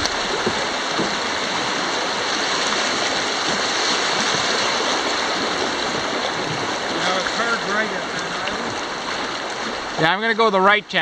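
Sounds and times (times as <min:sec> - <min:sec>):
whitewater rapid rushing: 0:00.0 - 0:11.0.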